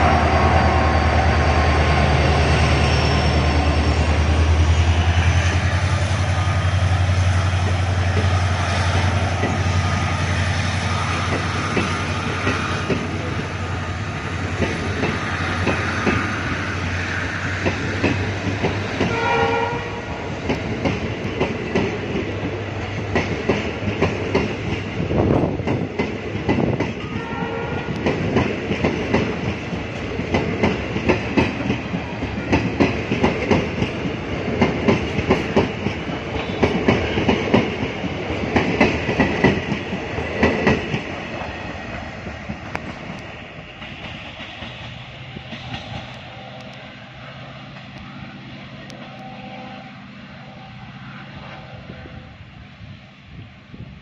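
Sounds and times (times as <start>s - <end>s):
train wheels clattering over rail joints: 5.1s - 19.2s, 20.4s - 46.8s.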